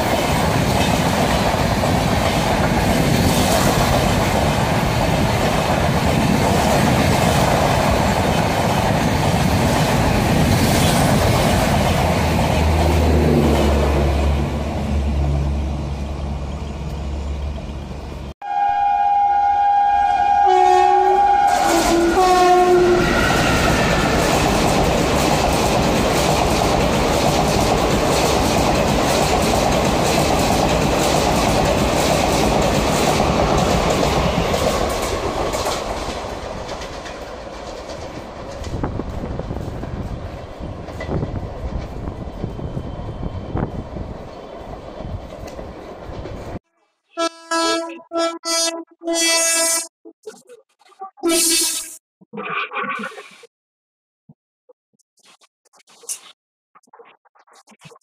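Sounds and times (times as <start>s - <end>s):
train rumbling over rails: 0.0s - 46.6s
locomotive horn blasts: 18.4s - 23.2s, 47.1s - 49.9s, 51.2s - 52.0s.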